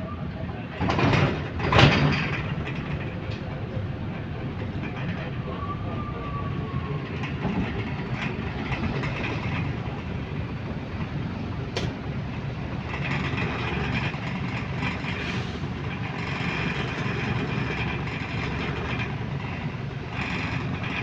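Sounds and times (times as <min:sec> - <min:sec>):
bus running noise: 0:00.0 - 0:21.0
sharp loud knock: 0:11.8 - 0:12.1.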